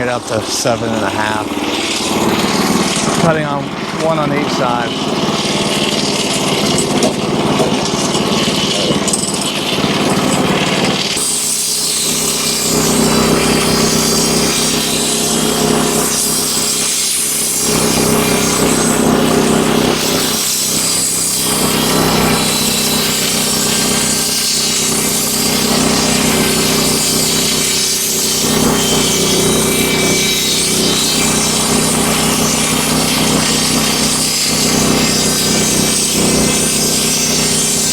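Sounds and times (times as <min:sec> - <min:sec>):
engine hum: 0:00.0 - 0:11.3
band saw blade cutting wood: 0:00.0 - 0:37.9.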